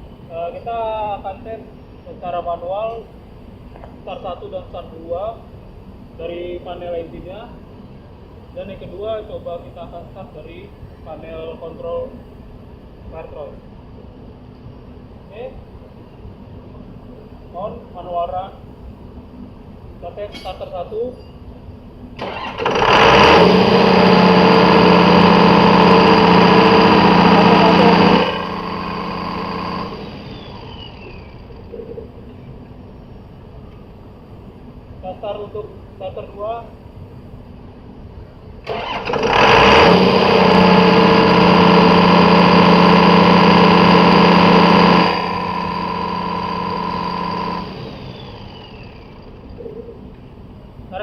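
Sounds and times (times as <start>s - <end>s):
diesel pump engine starting and running: 22.1s - 32.2s, 38.6s - 50.0s.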